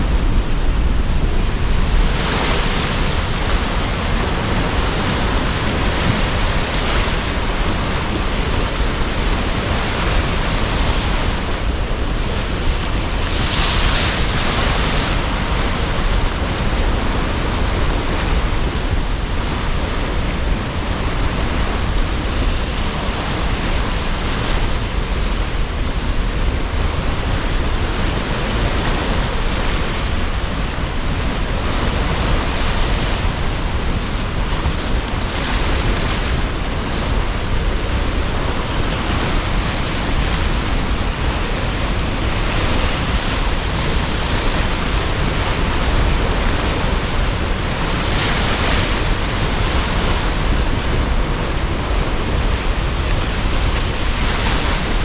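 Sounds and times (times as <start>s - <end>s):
strong wind: 0.0s - 55.0s
waves breaking: 0.0s - 55.0s.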